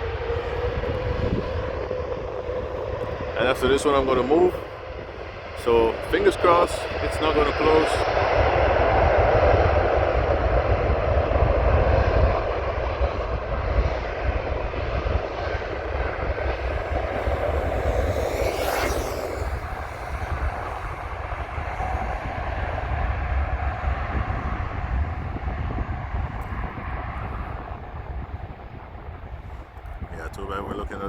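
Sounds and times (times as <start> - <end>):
jet engines roaring: 0.0 - 30.1
hissy swell: 15.6 - 24.8.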